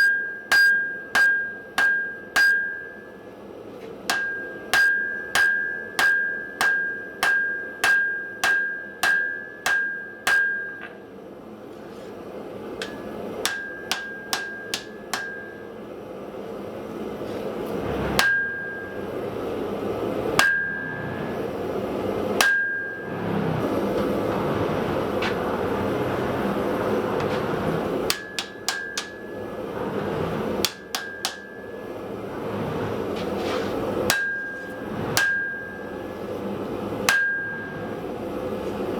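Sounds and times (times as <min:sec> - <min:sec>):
hammer blows on anvil: 0:00.0 - 0:03.1, 0:04.1 - 0:11.0, 0:12.8 - 0:15.8, 0:28.1 - 0:29.6, 0:30.6 - 0:31.9, 0:37.1 - 0:38.1
steady rushing noise: 0:19.8 - 0:38.9.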